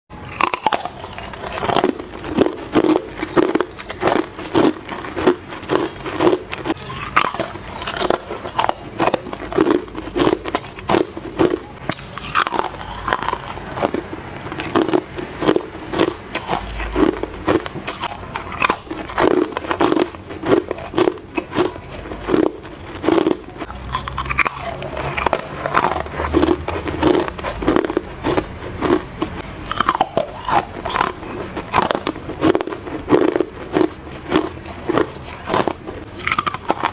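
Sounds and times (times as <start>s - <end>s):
ice crunched between teeth: 0.3s - 36.9s.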